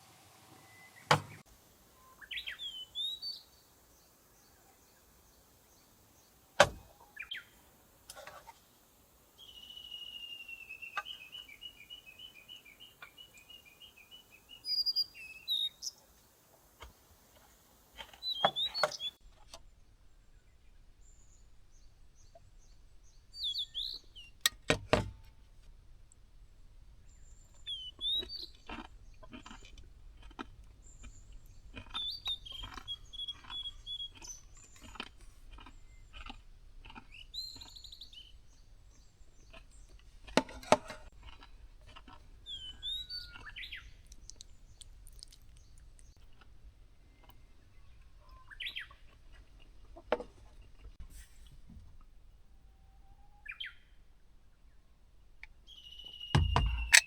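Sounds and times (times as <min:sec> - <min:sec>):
birds chirping: 0:00.8 - 0:04.1, 0:18.0 - 0:25.0, 0:26.0 - 0:46.4, 0:47.0 - 0:50.1, 0:52.6 - 0:57.0
sharp clicks and knocks: 0:24.4 - 0:25.7, 0:56.4 - 0:57.0.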